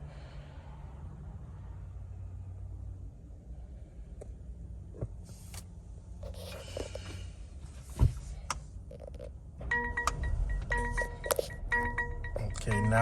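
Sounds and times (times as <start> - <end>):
low steady rumble: 0.0 - 13.0
bell-like electronic tones: 9.7 - 13.0.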